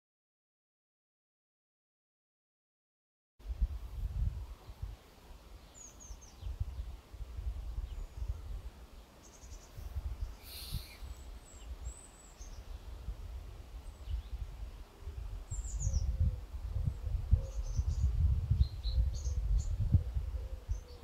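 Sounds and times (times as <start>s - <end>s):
wind on microphone: 3.4s - 5.0s, 6.0s - 8.8s, 9.5s - 21.0s
birds chirping: 5.5s - 7.0s, 7.8s - 21.0s.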